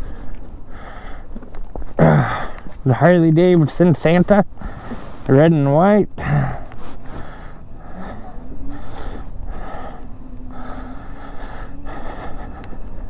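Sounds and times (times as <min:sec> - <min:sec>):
heavy breathing: 0:00.0 - 0:02.8, 0:04.5 - 0:05.4, 0:06.1 - 0:13.0
e-bike rumble: 0:00.0 - 0:13.0
faint steady hum: 0:00.0 - 0:13.0.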